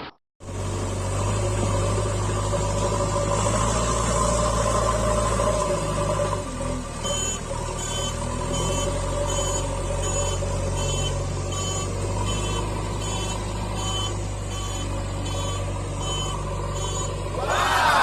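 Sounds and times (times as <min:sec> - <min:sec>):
short beeping alarm: 0:07.0 - 0:17.2.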